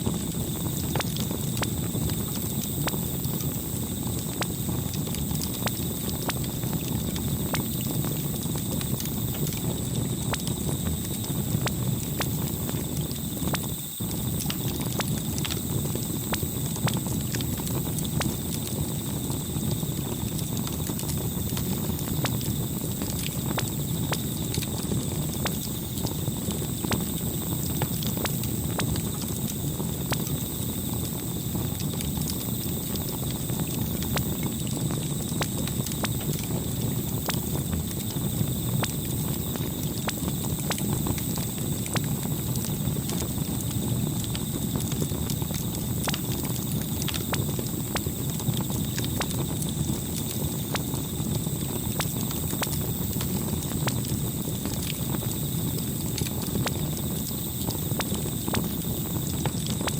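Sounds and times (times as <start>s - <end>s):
campfire flames rushing: 0.0s - 59.9s
fire crackling and popping: 0.0s - 59.9s.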